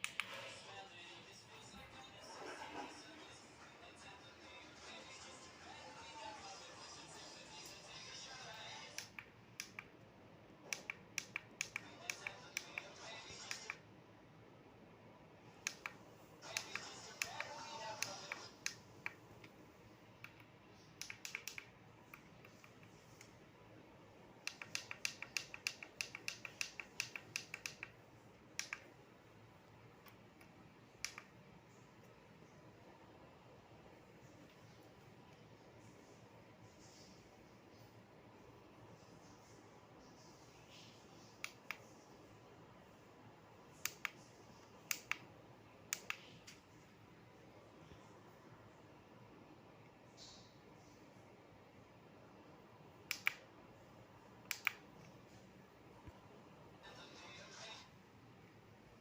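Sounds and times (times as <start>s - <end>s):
faint steady hiss: 0.0s - 59.0s
sharp clicks in pairs: 9.0s - 10.0s, 10.7s - 12.9s, 15.6s - 19.6s, 20.2s - 23.3s, 24.4s - 28.0s, 28.6s - 28.9s, 43.8s - 44.2s, 44.8s - 45.3s, 45.9s - 46.6s, 53.1s - 53.5s, 54.4s - 55.1s
light clicks: 53.1s - 53.4s, 54.4s - 55.2s.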